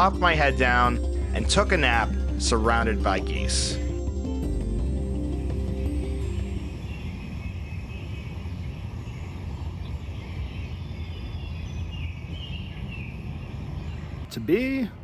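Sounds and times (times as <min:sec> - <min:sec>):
background music: 0:00.0 - 0:07.4
low rumble: 0:00.0 - 0:14.2
faint bird calls: 0:05.5 - 0:14.8.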